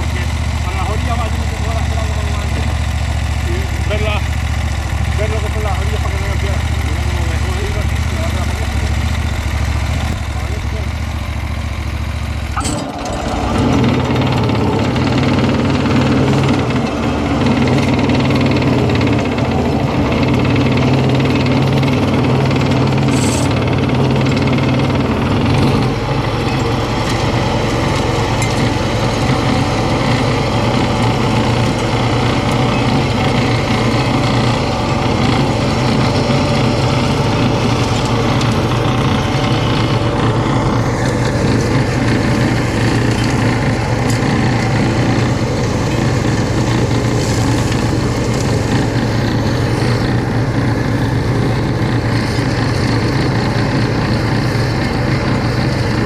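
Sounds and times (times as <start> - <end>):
flail mower rattling and hammering: 0.0 - 56.0
tractor engine running under load: 0.0 - 56.0.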